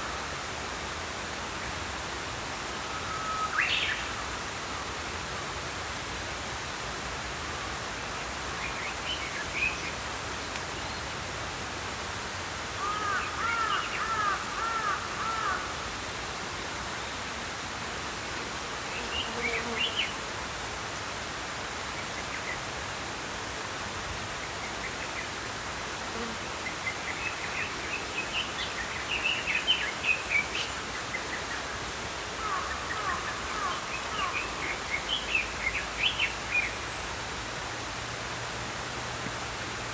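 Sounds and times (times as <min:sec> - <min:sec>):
stream flowing: 0:20.2 - 0:39.9
small songbirds chirping: 0:26.7 - 0:37.3.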